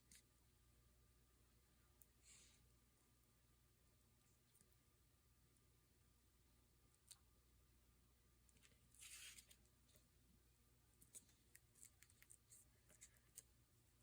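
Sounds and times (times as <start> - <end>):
paper rustling: 8.6 - 10.0, 11.0 - 13.5.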